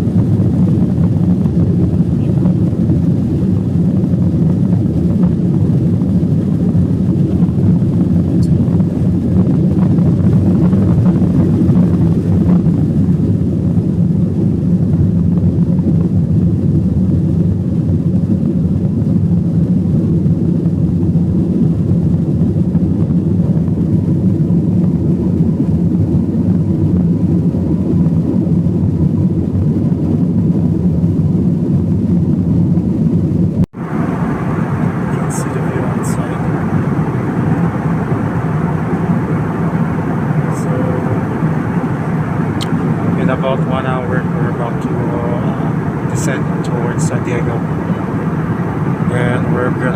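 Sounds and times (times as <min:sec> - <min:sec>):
jet engines and airflow in cabin: 0:00.0 - 0:49.9.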